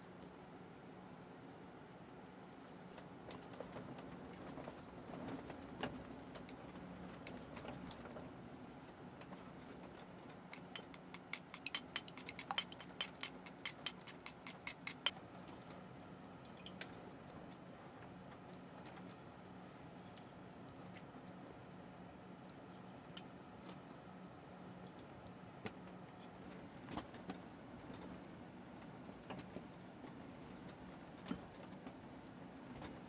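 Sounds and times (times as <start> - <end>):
steady low hum: 10.4 - 16.8.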